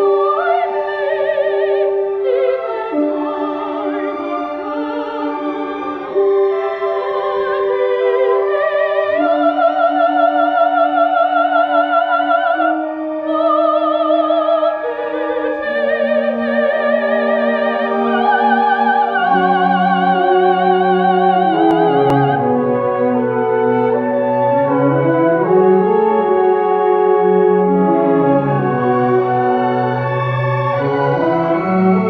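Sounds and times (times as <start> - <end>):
operatic soprano singing: 0.0 - 24.3
orchestral accompaniment: 0.0 - 32.0.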